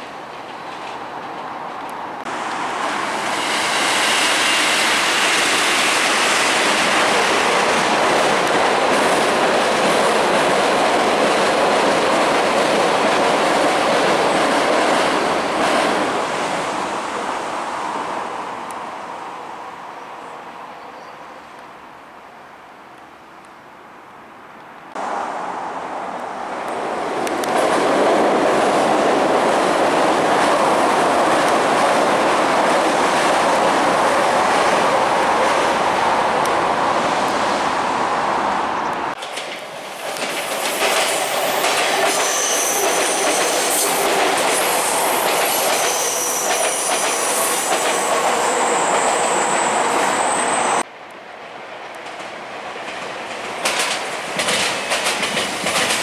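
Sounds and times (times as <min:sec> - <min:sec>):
train rolling past: 0:00.0 - 0:20.4, 0:24.9 - 0:56.0
train approaching: 0:00.0 - 0:21.1, 0:24.9 - 0:56.0
high wheel squeals: 0:41.4 - 0:44.0, 0:44.8 - 0:50.8
wheels clattering on steel bridge: 0:52.1 - 0:56.0.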